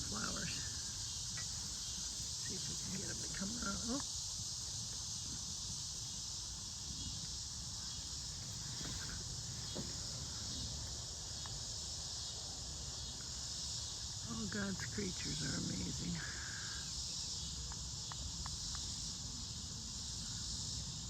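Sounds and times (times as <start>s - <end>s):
insects buzzing: 0.0s - 21.0s.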